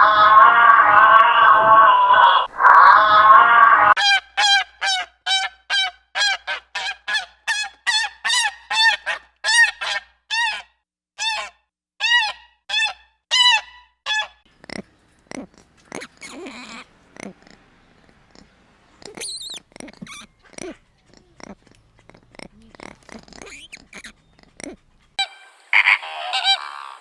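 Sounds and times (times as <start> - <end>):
animal calling high short calls: 19.1 - 20.8, 22.8 - 27.0.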